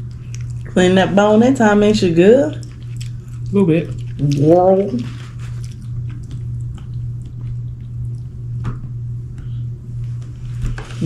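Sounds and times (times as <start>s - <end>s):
chewing and wet mouth sounds: 0.0s - 0.9s, 2.5s - 8.6s
steady low hum: 0.0s - 11.0s.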